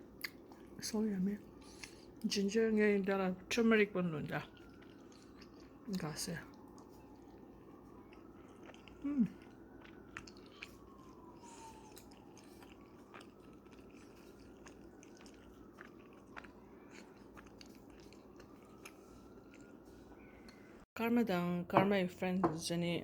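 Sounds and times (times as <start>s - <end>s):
person chewing food: 0.0s - 0.8s, 1.4s - 2.3s, 4.4s - 20.8s.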